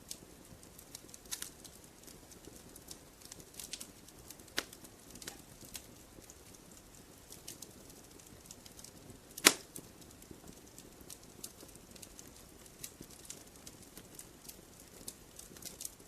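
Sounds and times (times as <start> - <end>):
wood fire crackling: 0.0 - 16.0
loud pop of fire: 9.3 - 9.9.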